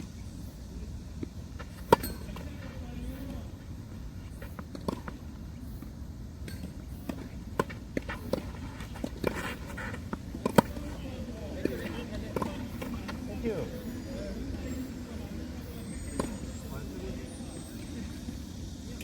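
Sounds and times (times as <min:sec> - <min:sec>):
tennis ball bouncing on court: 0:01.2 - 0:03.2, 0:04.3 - 0:05.3, 0:06.4 - 0:13.2, 0:16.1 - 0:16.5
tennis ball hits: 0:01.7 - 0:02.6, 0:06.4 - 0:13.2.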